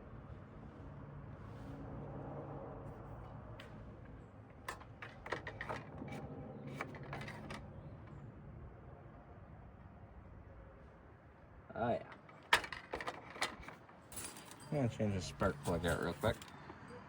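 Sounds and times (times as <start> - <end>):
light clicks and knocks: 3.6 - 8.2.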